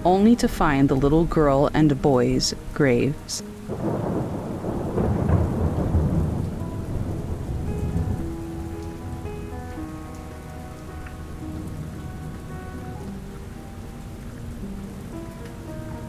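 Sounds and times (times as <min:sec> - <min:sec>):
slow sustained background music: 0:00.0 - 0:16.0
steady rainfall: 0:00.0 - 0:16.0
thunder rolling: 0:03.7 - 0:13.6.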